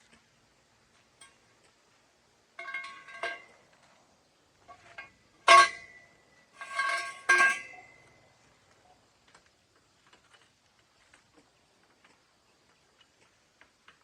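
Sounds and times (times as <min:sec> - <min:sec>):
metal clanks and scrapes: 0:02.6 - 0:03.6, 0:04.6 - 0:08.1.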